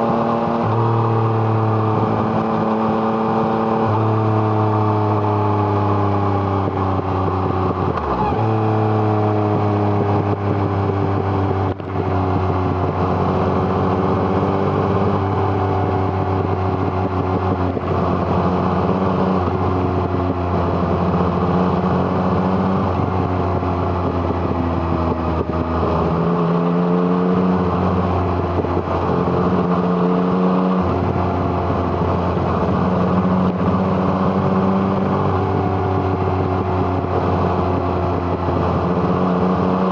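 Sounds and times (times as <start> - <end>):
motorcycle engine riding along: 0.0 - 39.9.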